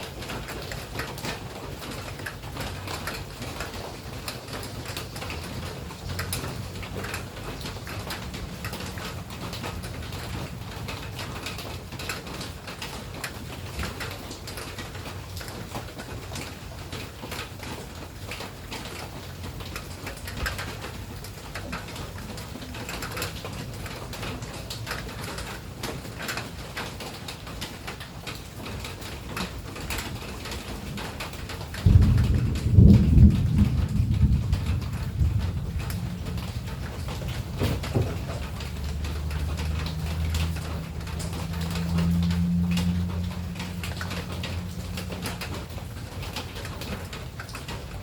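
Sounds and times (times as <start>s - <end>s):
rain patter: 0.0s - 48.0s
low rumble: 31.9s - 46.1s.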